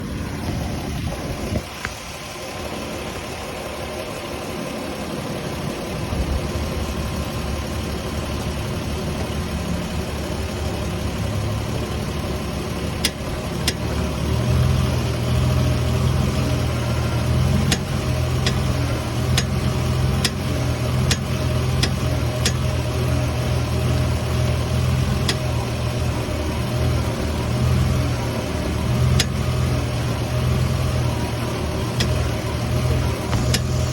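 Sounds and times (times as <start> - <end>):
car engine running: 0.0 - 33.9
sharp popping from car steering: 17.6 - 22.7.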